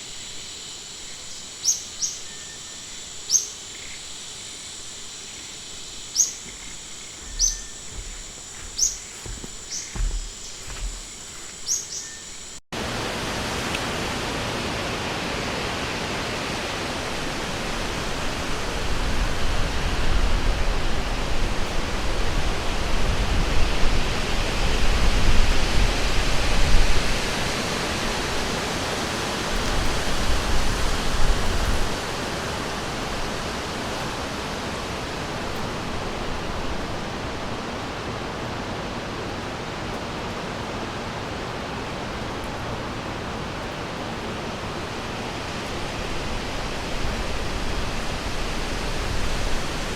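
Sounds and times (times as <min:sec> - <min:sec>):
deep uneven rumble: 0:05.1 - 0:11.6
river water rushing: 0:12.8 - 0:23.1.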